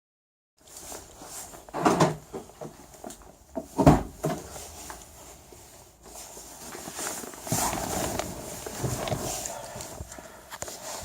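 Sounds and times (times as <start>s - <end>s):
handling knocks in car: 3.6s - 4.4s.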